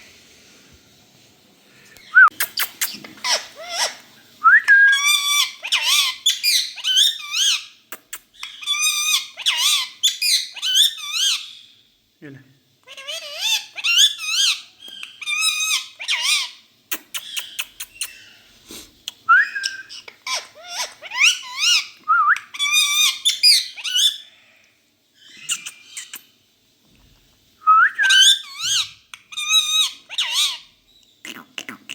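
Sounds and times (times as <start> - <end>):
parrot whistling and chattering: 2.1 - 11.6, 12.9 - 18.4, 19.1 - 24.2, 25.3 - 26.3, 27.7 - 31.9.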